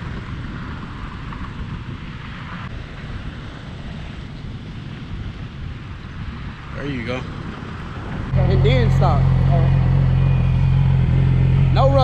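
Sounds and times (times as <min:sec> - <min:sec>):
wind rumble on microphone: 0:00.0 - 0:12.0
motorcycle engine at low revs: 0:08.3 - 0:12.0.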